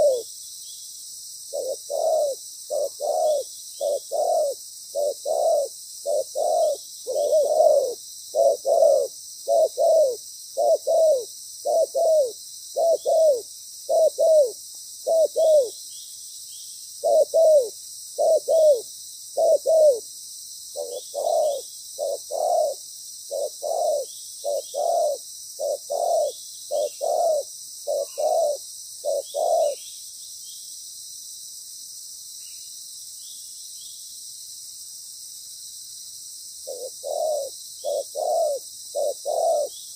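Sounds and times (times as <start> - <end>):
dove cooing: 0.0 - 0.3, 1.5 - 15.8, 17.0 - 20.1, 20.7 - 29.8, 36.6 - 39.8.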